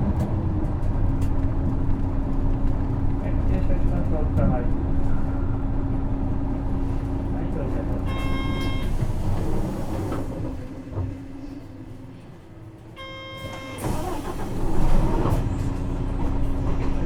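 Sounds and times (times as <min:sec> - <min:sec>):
bus diesel engine: 0:00.0 - 0:17.0
short electronic beep: 0:08.1 - 0:09.0, 0:13.0 - 0:13.8.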